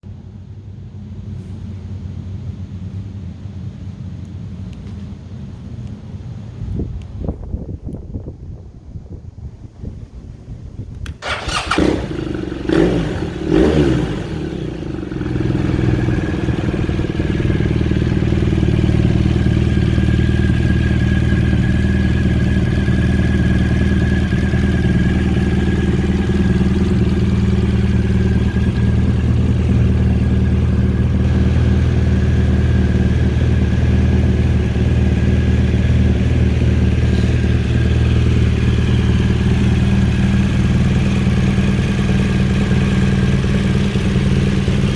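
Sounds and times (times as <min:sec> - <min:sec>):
engine starting and idling: 0:10.9 - 0:44.9.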